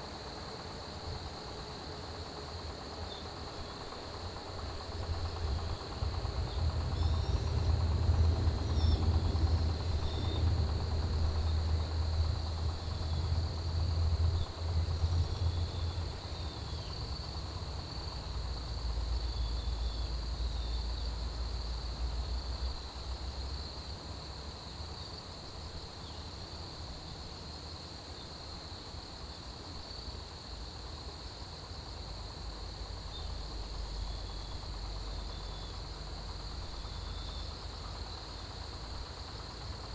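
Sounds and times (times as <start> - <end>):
crickets chirping: 0.0 - 39.9
high pulsing insect trill: 0.0 - 39.9
low rumble: 4.8 - 17.7.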